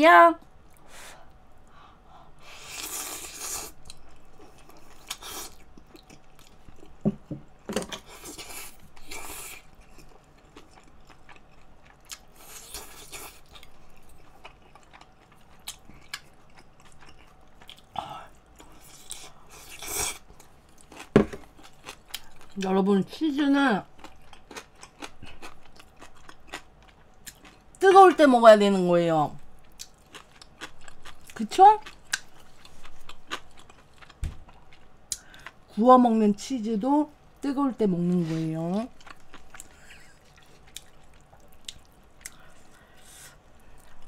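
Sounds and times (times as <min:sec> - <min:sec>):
chewing and mouth noises: 0:08.0 - 0:22.7, 0:24.0 - 0:27.8, 0:29.6 - 0:35.6, 0:38.9 - 0:44.0.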